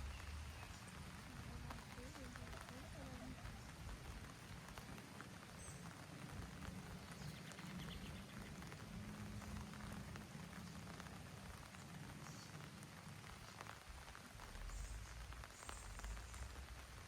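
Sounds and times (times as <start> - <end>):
light rain pattering: 0.0 - 17.0.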